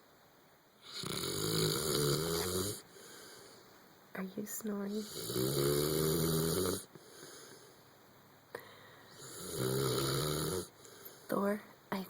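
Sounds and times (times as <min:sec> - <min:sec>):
dog snoring: 0:00.8 - 0:03.4, 0:04.9 - 0:07.4, 0:09.1 - 0:11.0.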